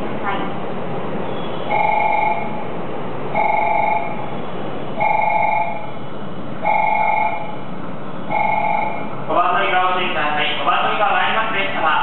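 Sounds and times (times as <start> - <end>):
electronic ringing warning tone: 1.7 - 2.6, 3.3 - 4.2, 5.0 - 6.0, 6.6 - 7.6, 8.3 - 9.1.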